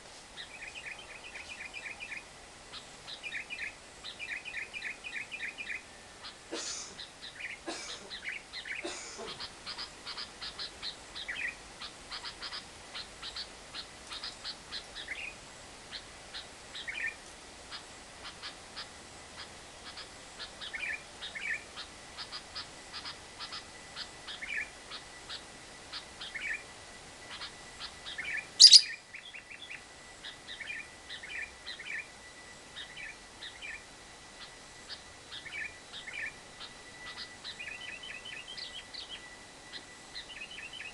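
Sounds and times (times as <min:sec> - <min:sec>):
lovebird chattering: 0:00.4 - 0:26.7, 0:27.3 - 0:32.1, 0:32.8 - 0:39.2
bird chirps: 0:00.4 - 0:40.9
loud sharp bird call: 0:28.3 - 0:29.0.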